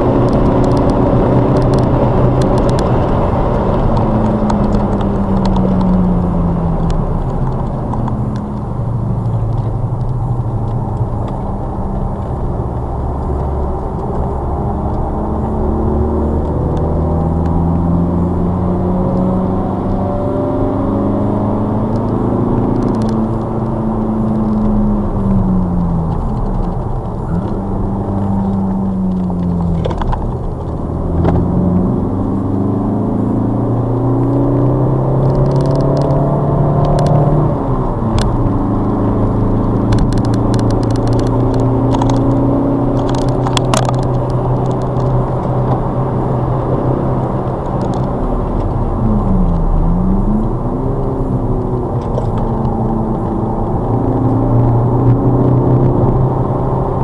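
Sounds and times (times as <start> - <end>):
car engine revving: 0.0 - 57.0
road noise: 0.0 - 57.0
light rattling clicks: 39.8 - 46.0.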